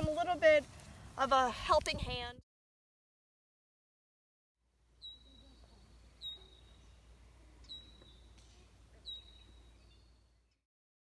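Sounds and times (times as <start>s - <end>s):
bird whistling call: 5.0s - 7.0s, 7.6s - 8.4s, 9.0s - 10.1s.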